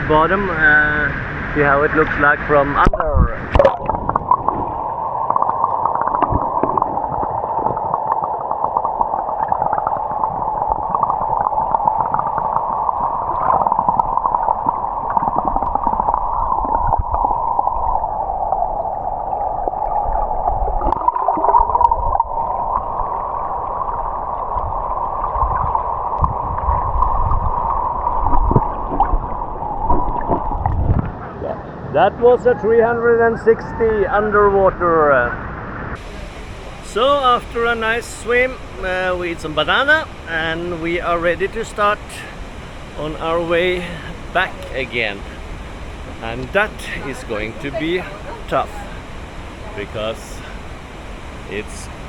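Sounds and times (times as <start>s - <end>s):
muffled underwater water rushing: 0.0s - 32.3s, 33.8s - 52.0s.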